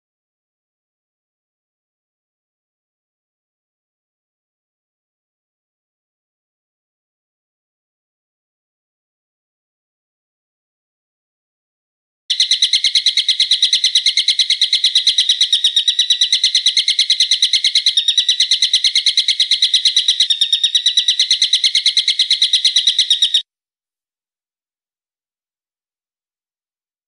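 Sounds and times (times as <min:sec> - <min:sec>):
songbird rapid trill: 0:12.3 - 0:23.4.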